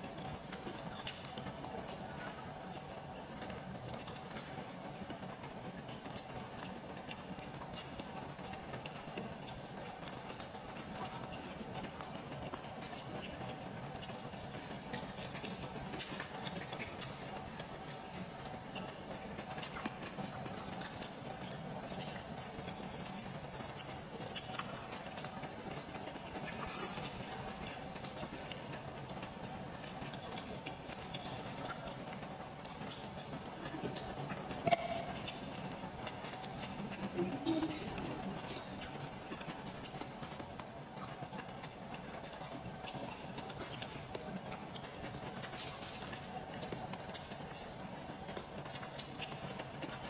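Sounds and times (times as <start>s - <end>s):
chewing noodles: 0.0s - 50.0s.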